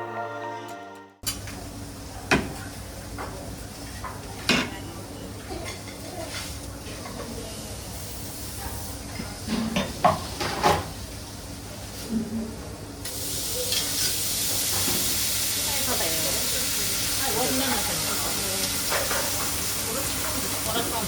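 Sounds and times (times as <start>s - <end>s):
background music: 0.0s - 1.2s
restaurant background noise: 0.0s - 21.0s.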